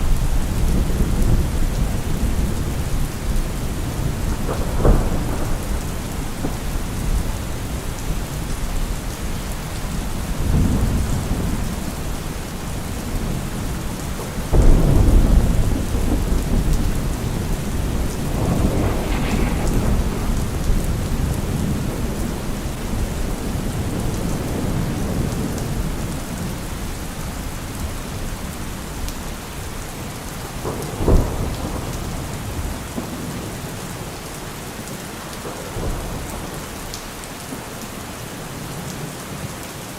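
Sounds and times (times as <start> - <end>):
deep low thunder rumbles: 0.0 - 26.4
heavy rain: 0.0 - 39.9.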